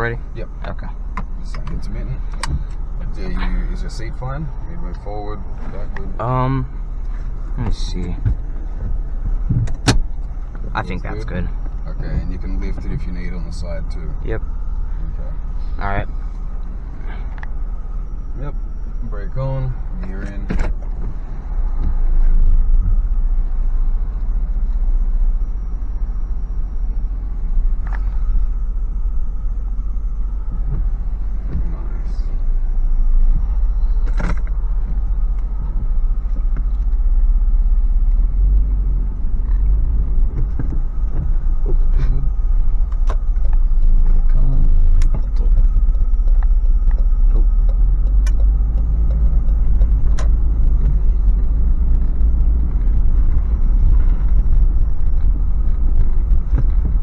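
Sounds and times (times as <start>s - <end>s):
engine and road rumble in cab: 0.0s - 57.0s
sharp clicks and knocks: 7.6s - 10.7s, 42.6s - 57.0s.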